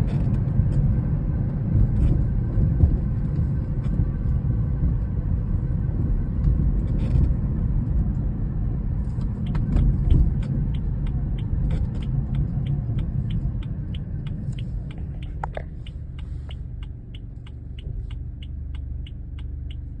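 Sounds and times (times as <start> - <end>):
car engine low rumble: 0.0 - 20.0
regular ticking: 9.2 - 20.0.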